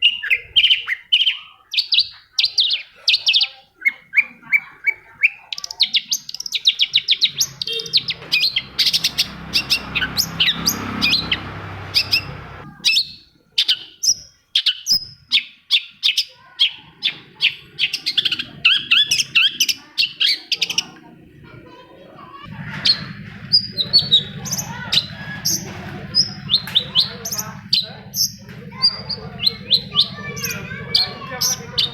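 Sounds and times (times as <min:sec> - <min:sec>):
bird song chattering and whistling: 0:00.0 - 0:21.0, 0:22.5 - 0:31.9
low steady hum: 0:22.5 - 0:31.9.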